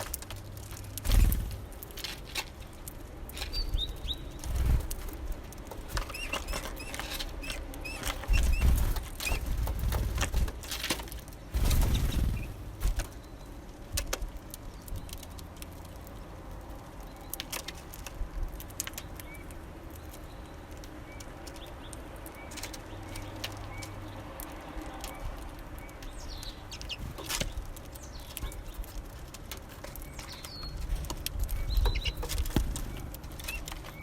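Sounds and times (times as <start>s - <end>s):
bird wings fluttering: 0.9s - 2.6s, 3.3s - 13.3s, 26.8s - 29.3s, 30.2s - 34.0s
low thumps: 8.0s - 10.7s.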